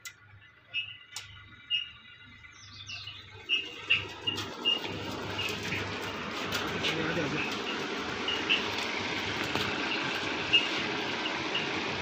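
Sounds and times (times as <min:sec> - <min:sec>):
birds chirping: 0:00.0 - 0:12.0
sharp clicks: 0:01.1 - 0:01.4.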